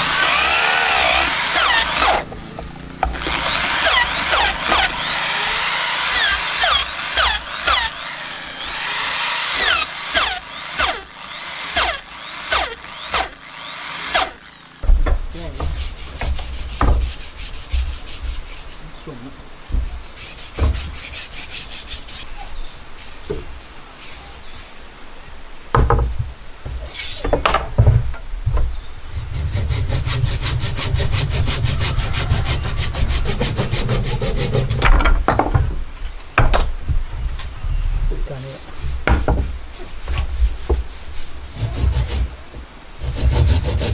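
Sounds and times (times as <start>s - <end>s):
knocks on wood: 0.0s - 8.1s, 14.8s - 18.6s, 19.6s - 21.2s, 25.7s - 41.0s
wood being sawn: 0.0s - 43.9s.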